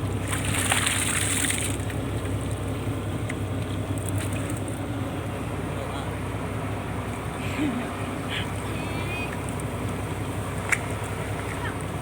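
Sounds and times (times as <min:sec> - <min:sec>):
boat engine running: 0:00.0 - 0:12.0
splashing water: 0:00.1 - 0:02.1, 0:09.0 - 0:12.0.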